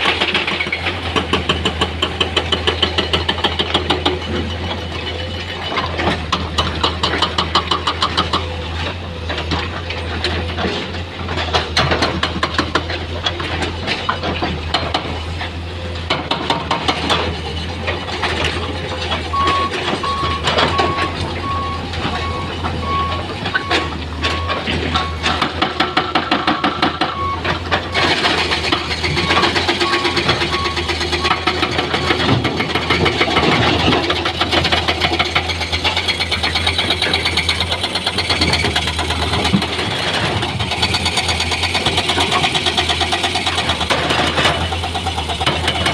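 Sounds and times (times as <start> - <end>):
diesel machinery engine drone: 0.0 - 45.9
single-tone beeping: 19.3 - 25.2.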